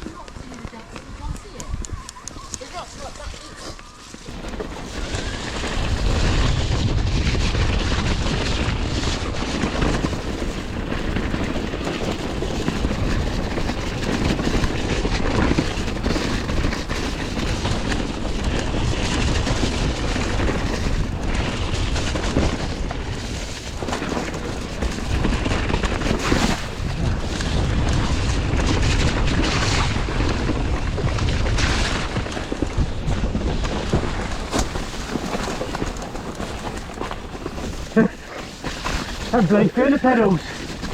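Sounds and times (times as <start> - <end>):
bike tyre noise: 0.0 - 40.9
wind rumbling on microphone: 0.0 - 40.9
bike knocks over rough ground: 23.6 - 39.3.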